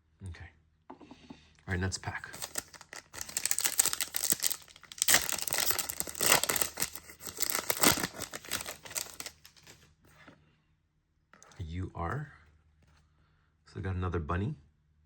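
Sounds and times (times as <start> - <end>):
wrapper tearing and crinkling: 2.2 - 9.8.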